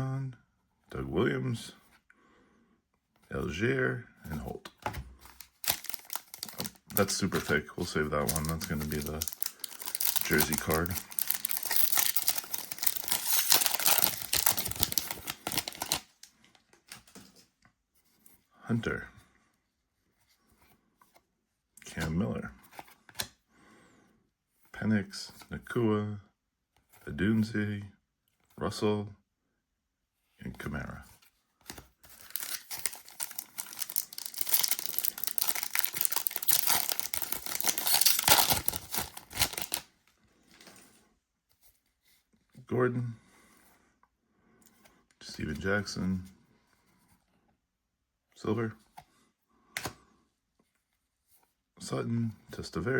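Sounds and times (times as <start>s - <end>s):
foil wrapper crinkling and tearing: 5.4s - 16.2s, 32.1s - 39.9s.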